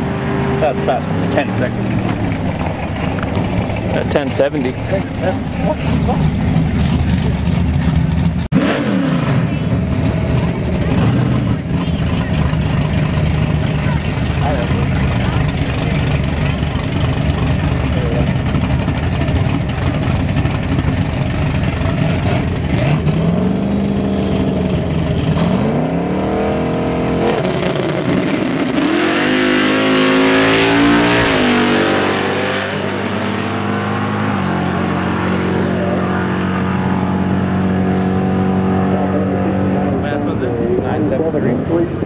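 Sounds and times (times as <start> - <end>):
drag car engine revving: 0.0 - 42.0
engine rumbling idle: 0.6 - 8.5, 9.4 - 25.4.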